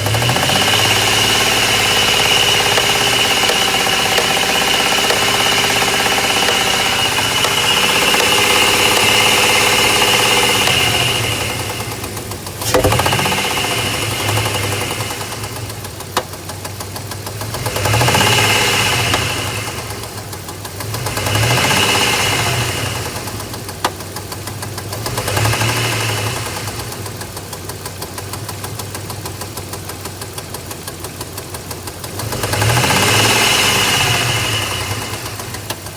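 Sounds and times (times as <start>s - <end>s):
truck engine revving: 0.0s - 16.0s, 17.2s - 23.6s, 32.2s - 35.7s
engine knocking tick: 0.0s - 35.9s
sharp click: 12.6s - 13.4s.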